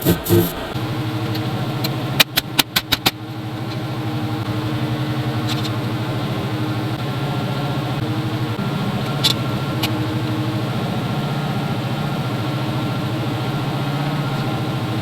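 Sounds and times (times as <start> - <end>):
vehicle engine idling: 3.2 - 15.0.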